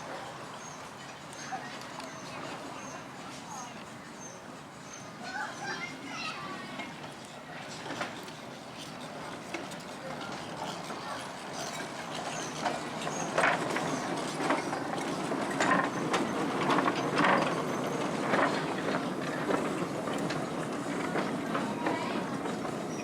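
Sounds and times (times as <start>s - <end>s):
train wheels clicking over rail joints: 6.6s - 23.0s.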